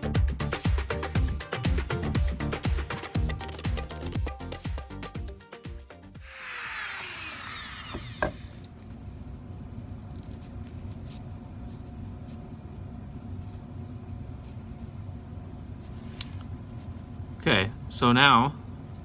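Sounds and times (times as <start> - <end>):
rotary tool whine spinning down: 6.2 - 8.7.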